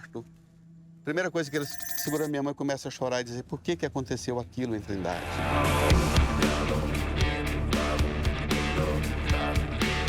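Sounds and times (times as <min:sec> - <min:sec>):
background music with guitar: 0:06.0 - 0:10.0.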